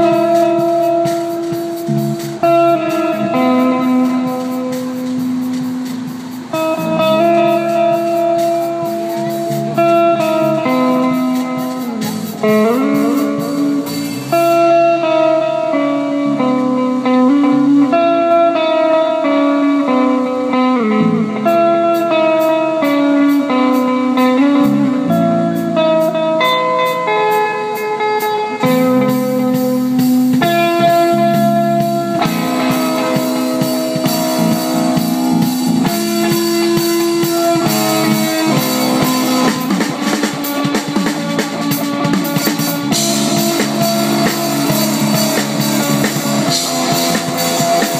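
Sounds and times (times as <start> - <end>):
live band guitar music: 0.0 - 47.9.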